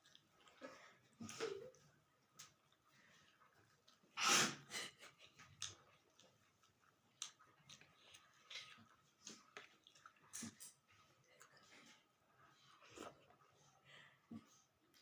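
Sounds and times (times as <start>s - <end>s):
person sniffing: 4.2s - 4.7s
person chewing with mouth clicks: 5.3s - 11.6s.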